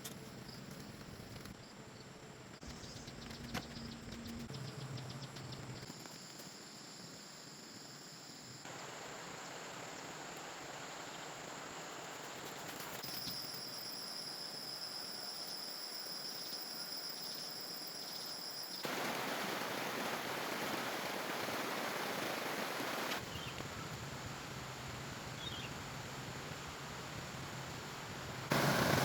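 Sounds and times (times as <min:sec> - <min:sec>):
high insect drone: 0:04.6 - 0:23.5.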